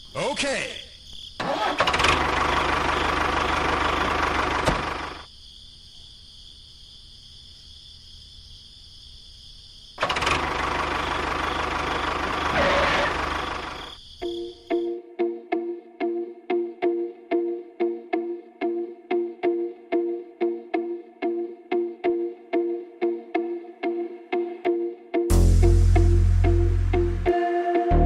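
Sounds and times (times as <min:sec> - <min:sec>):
small engine running: 0:01.4 - 0:05.3, 0:10.0 - 0:13.9.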